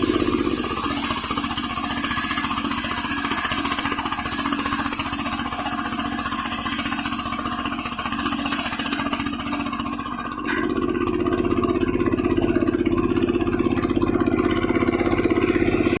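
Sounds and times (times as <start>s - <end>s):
saw blade hissing through log: 0.0s - 10.4s
two-stroke engine running: 0.0s - 16.0s.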